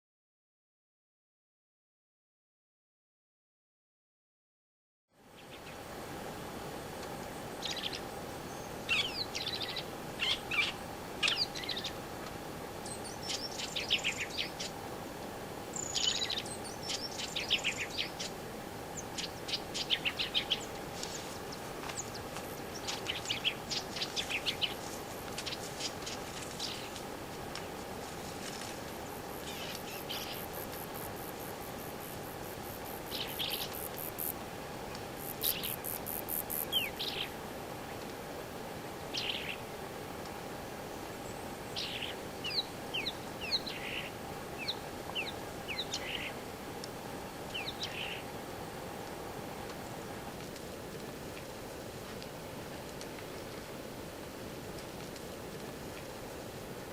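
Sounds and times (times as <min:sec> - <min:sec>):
birds chirping: 0:07.6 - 0:12.0, 0:12.8 - 0:14.8, 0:15.7 - 0:27.0, 0:29.0 - 0:34.3, 0:35.2 - 0:37.4.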